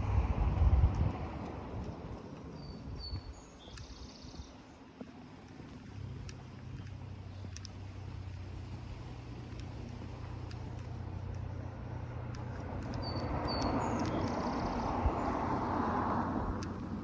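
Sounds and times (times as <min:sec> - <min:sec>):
car passing: 0:00.0 - 0:02.5, 0:07.9 - 0:17.0
high bird chirps: 0:12.9 - 0:15.3.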